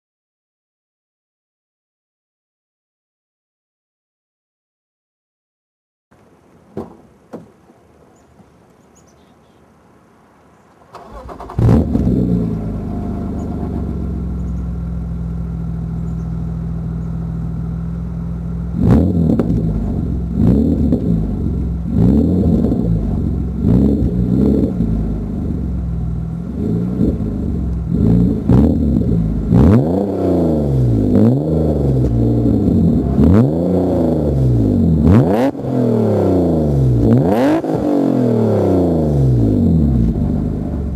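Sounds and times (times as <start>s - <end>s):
car engine starting and revving: 10.8s - 40.9s.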